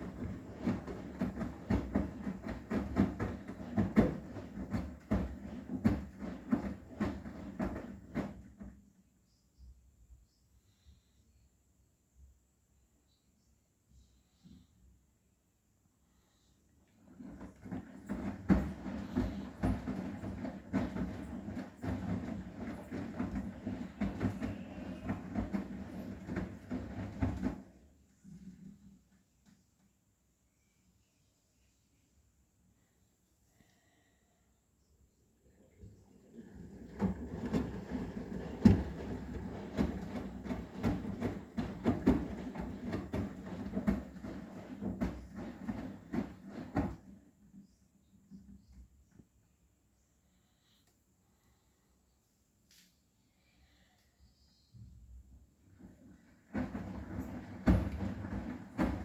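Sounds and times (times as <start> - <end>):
cushions thudding in drum: 0.0 - 8.7, 17.1 - 27.8, 36.7 - 47.2, 56.4 - 59.0
washing machine drum turning: 36.7 - 47.1.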